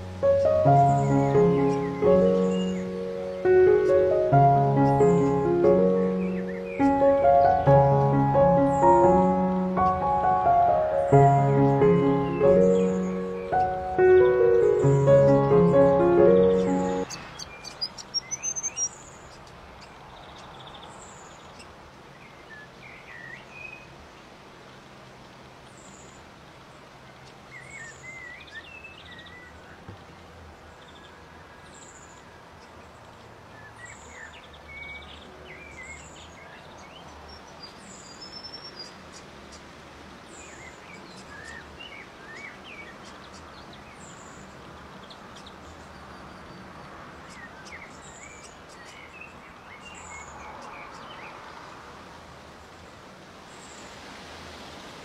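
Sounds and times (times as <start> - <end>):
twittering bird chirps: 0.0 - 19.0
steady background hiss: 0.0 - 20.1.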